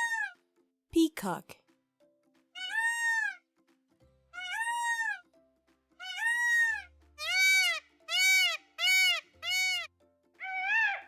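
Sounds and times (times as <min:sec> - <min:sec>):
peacock calling: 0:00.0 - 0:00.4, 0:02.6 - 0:03.4, 0:04.4 - 0:05.2, 0:06.0 - 0:11.0
soft background music: 0:00.0 - 0:11.0.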